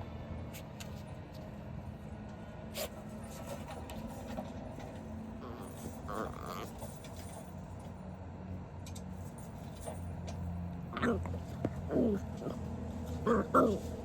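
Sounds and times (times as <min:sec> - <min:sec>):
puppy making soft noises: 0:05.4 - 0:07.3, 0:10.9 - 0:14.0.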